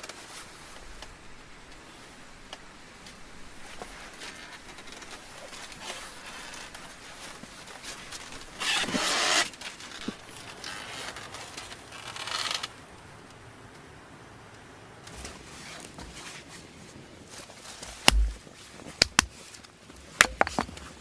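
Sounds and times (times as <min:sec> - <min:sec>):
rough scraping of wood: 0:03.8 - 0:12.7.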